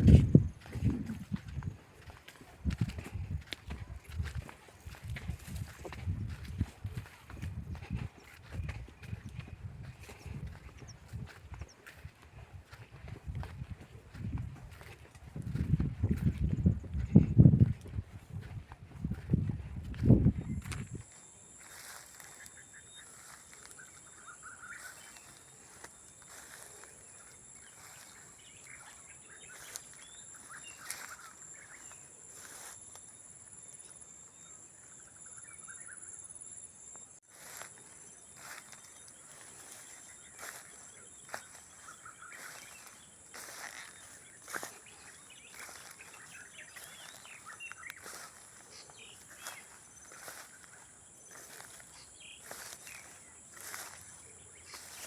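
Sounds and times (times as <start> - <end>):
crickets chirping: 0.0 - 55.0
bird chirps: 21.6 - 32.7, 37.4 - 55.0.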